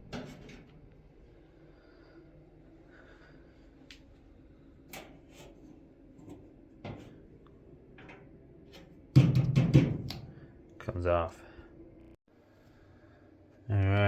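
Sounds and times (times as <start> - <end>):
clicks and knocks of dryer parts: 6.2 - 7.2, 7.9 - 10.5.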